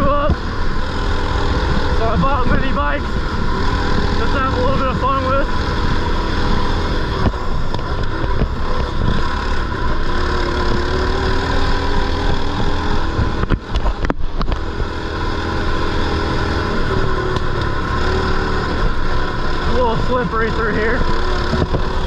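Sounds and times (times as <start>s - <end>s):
small motorbike engine running: 0.0s - 22.0s.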